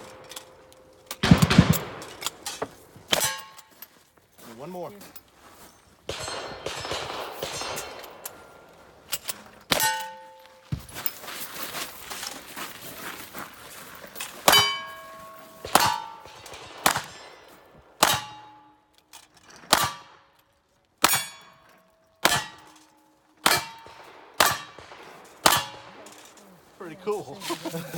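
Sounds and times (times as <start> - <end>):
gunshots: 0.0 - 3.6, 6.1 - 8.9, 14.4 - 18.6, 19.7 - 20.3, 22.2 - 22.8, 23.4 - 26.4
steel plate clanging: 0.0 - 3.9, 9.1 - 11.1, 14.2 - 20.1, 21.0 - 26.4.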